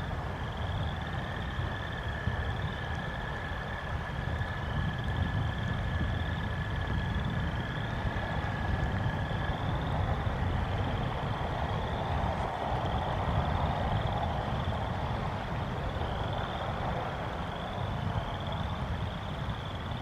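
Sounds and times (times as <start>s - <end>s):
wind and rain rumble: 0.0s - 20.0s.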